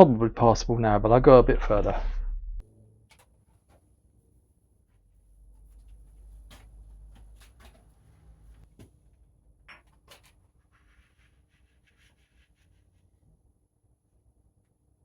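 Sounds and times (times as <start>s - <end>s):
low hum: 0.0s - 3.0s
soft rubbing: 10.1s - 13.4s.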